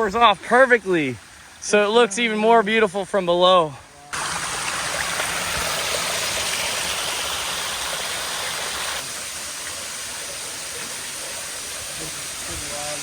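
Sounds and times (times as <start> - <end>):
waterfall rushing: 4.2 - 13.0.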